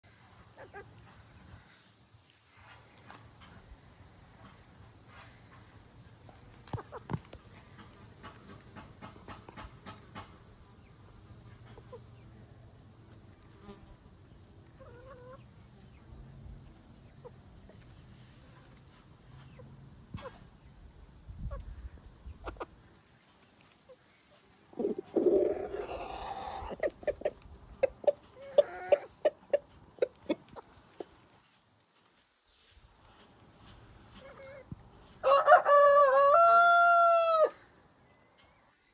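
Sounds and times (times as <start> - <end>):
chickens clucking: 0.1 - 38.9
chickens pecking taps: 5.6 - 12.0, 26.6 - 32.4.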